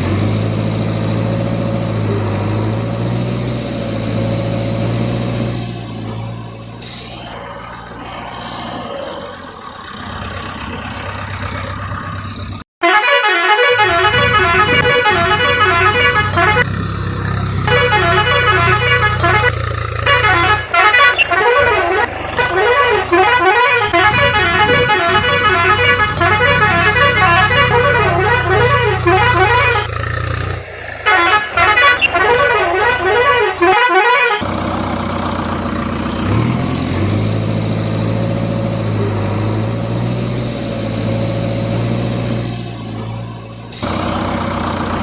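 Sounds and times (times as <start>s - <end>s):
vehicle sound: 0.0s - 45.0s
warbling vehicle horn: 12.8s - 34.5s.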